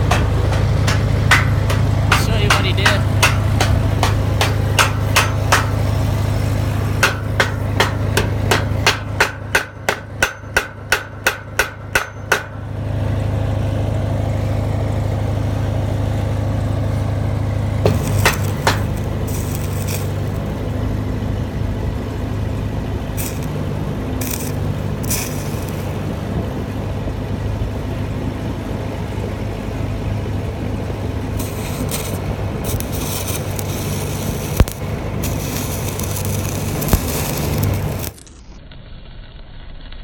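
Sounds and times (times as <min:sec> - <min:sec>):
knocks: 0:00.0 - 0:05.8
hammer tapping metal: 0:00.0 - 0:05.9, 0:07.0 - 0:12.6, 0:17.8 - 0:20.4
engine humming: 0:00.0 - 0:38.6.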